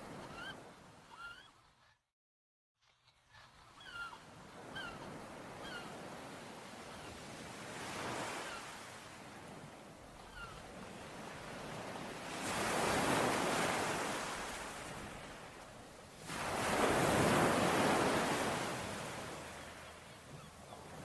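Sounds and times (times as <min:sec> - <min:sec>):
ocean waves washing onto shore: 0:05.3 - 0:21.0.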